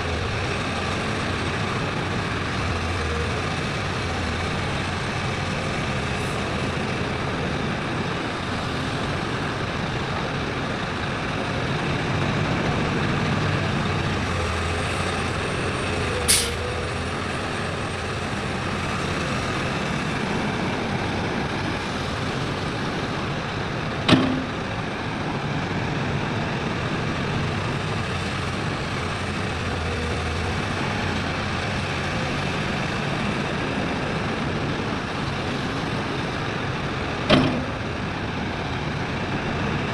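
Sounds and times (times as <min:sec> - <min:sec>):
heavy diesel engines running: 0:00.0 - 0:39.9
short sharp hiss: 0:16.3 - 0:16.6
sharp knock: 0:24.1 - 0:24.6.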